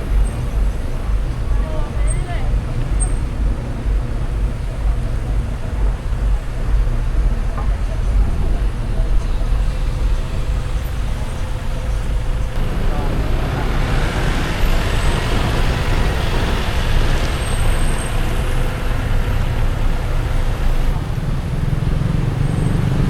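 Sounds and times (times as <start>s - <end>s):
car road rumble: 0.0s - 23.0s
passing traffic: 0.0s - 23.0s
tyres hissing on wet pavement: 9.3s - 22.9s.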